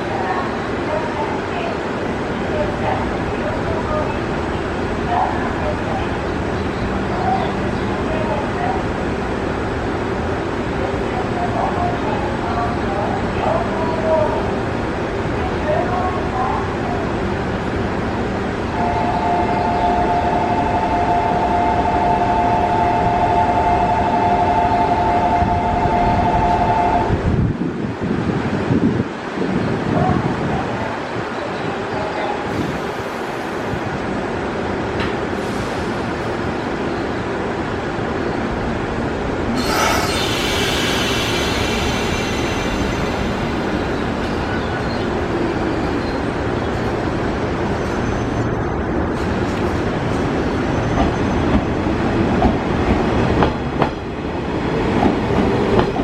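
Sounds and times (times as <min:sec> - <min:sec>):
electric train rumble: 0:00.0 - 0:56.0
air brake hiss: 0:35.4 - 0:36.0, 0:39.6 - 0:43.4
high squealing tones: 0:39.6 - 0:45.0.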